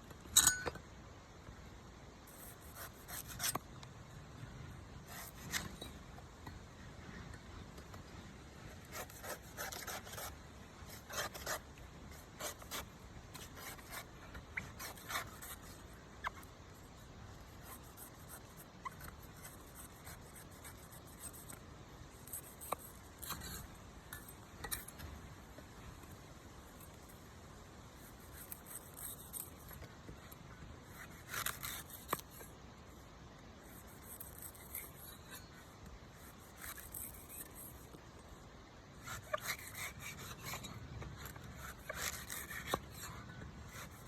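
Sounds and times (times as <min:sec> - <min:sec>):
knife scraping coconut: 0:02.3 - 0:03.6, 0:05.0 - 0:05.8, 0:08.8 - 0:16.5, 0:30.9 - 0:32.5, 0:33.6 - 0:37.9, 0:39.0 - 0:44.0.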